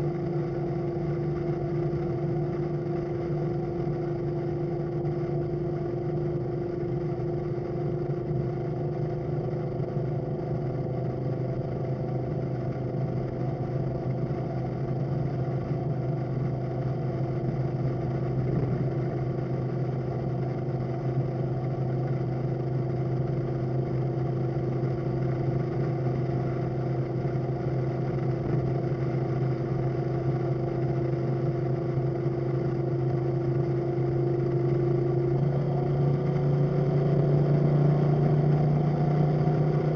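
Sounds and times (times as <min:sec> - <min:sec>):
car engine drone: 0:00.0 - 0:39.9.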